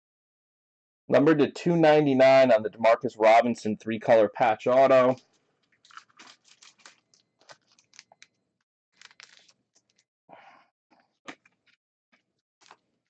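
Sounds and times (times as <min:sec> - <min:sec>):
trading cards and plastic rustling: 0:05.1 - 0:08.4, 0:09.0 - 0:10.0.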